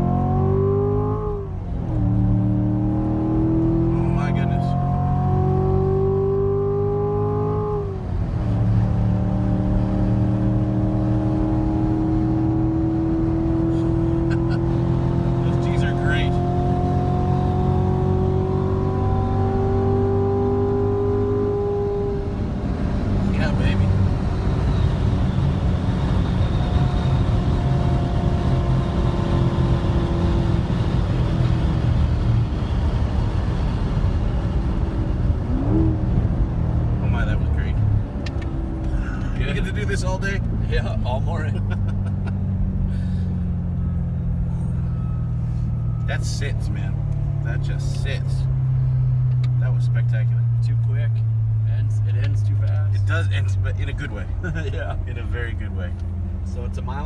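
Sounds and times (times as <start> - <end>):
car engine under power: 0.0 - 57.0
tyre and road noise: 0.0 - 57.0.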